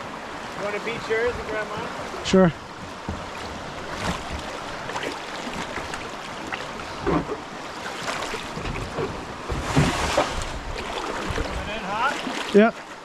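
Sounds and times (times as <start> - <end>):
kayak paddles splashing and knocking: 0.0 - 13.0
rushing whitewater river: 0.0 - 13.0.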